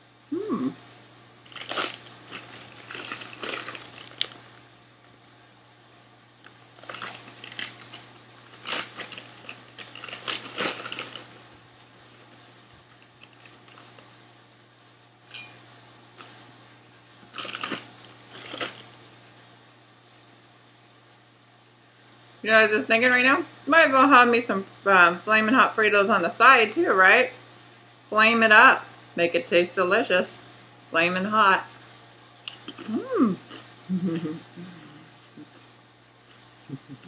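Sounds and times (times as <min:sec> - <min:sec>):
chip bag crinkling: 0:01.4 - 0:04.7, 0:06.4 - 0:14.2, 0:17.3 - 0:19.0
crunchy chewing: 0:01.5 - 0:04.4, 0:06.4 - 0:11.4.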